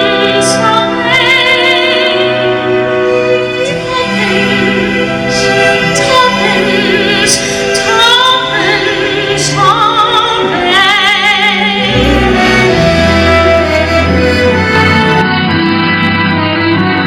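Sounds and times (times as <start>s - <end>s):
soprano singing: 0.0s - 17.0s
sustained strings: 11.5s - 17.0s
deep low notes: 11.8s - 16.5s.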